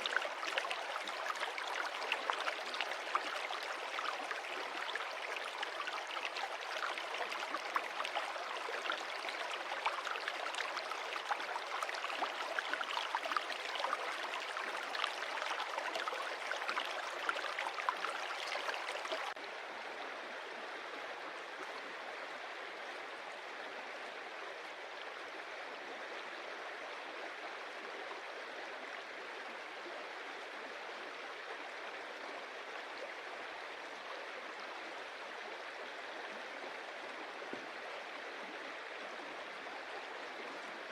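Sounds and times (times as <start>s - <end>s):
stream splashing over stones: 0.0s - 19.4s.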